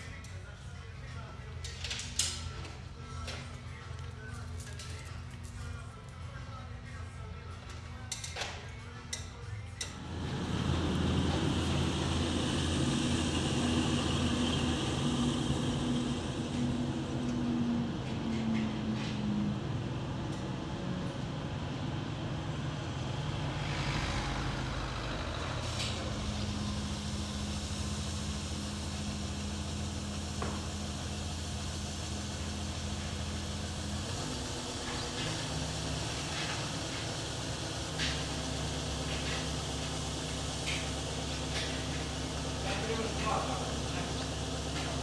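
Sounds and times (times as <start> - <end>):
motor vehicle engine running: 9.8 - 45.0.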